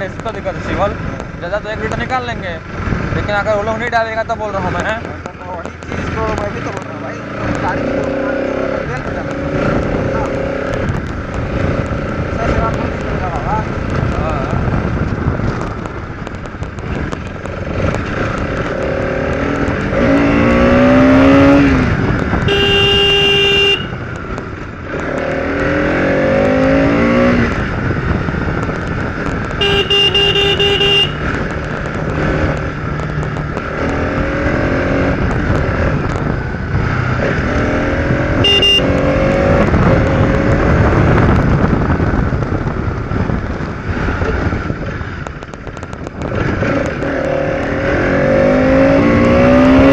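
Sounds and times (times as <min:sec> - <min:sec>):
motorcycle engine accelerating: 0:00.0 - 0:49.9
vehicle horn blasts: 0:22.5 - 0:24.0, 0:29.6 - 0:31.3, 0:38.4 - 0:39.2.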